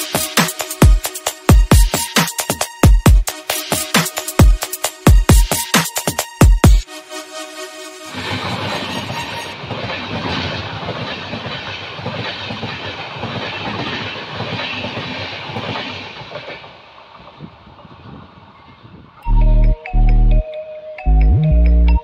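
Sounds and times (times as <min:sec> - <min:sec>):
train passing with wheel-on-rail noise: 0:00.0 - 0:21.1.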